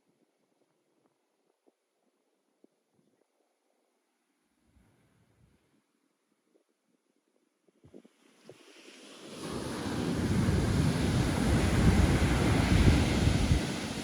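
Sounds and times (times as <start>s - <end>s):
waves breaking: 8.5s - 14.0s
wind buffeting microphone: 9.4s - 14.0s.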